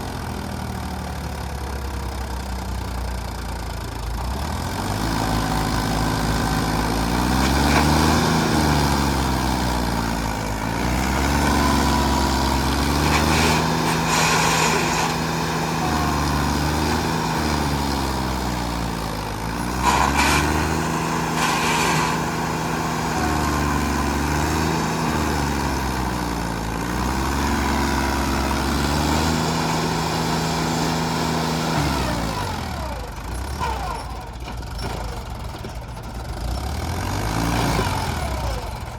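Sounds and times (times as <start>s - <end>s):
vehicle engine revving: 4.3s - 33.0s
short hissing bursts: 13.0s - 15.3s.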